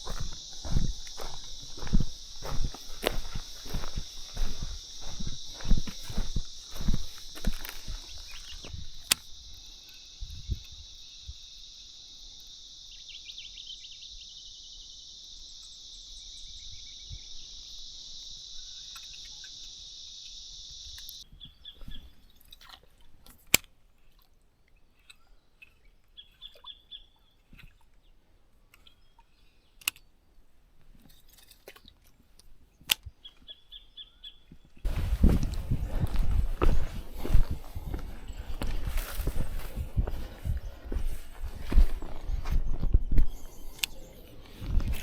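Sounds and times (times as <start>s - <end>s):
crunching footsteps: 0.0s - 10.9s, 34.8s - 45.0s
high-pitched insect chorus: 0.0s - 21.2s, 34.9s - 45.0s
bird chirps: 0.0s - 22.4s, 35.6s - 45.0s.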